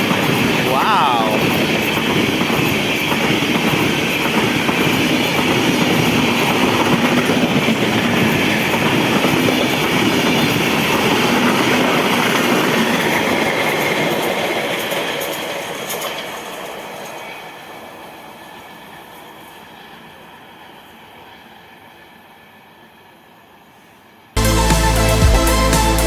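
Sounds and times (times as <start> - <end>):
train passing at speed: 0.0 - 24.4
wheels rushing on rails: 1.4 - 23.8.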